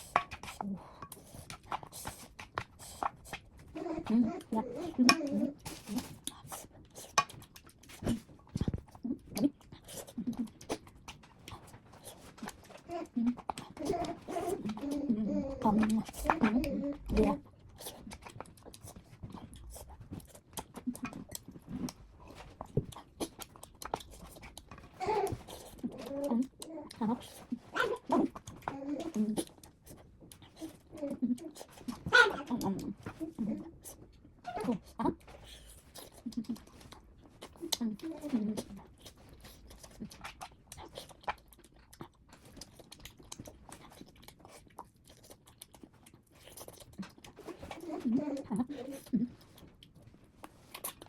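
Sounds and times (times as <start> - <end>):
chewing and mouth sounds: 0.0 - 51.0.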